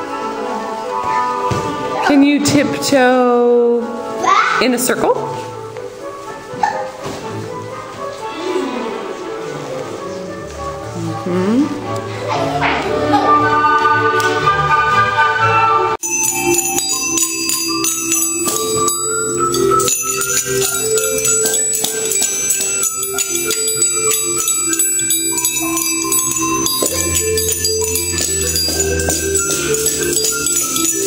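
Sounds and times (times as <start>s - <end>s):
melodic music: 9.4s - 31.0s
small bells shaken to music: 16.0s - 31.0s
small metal percussion: 16.0s - 31.0s.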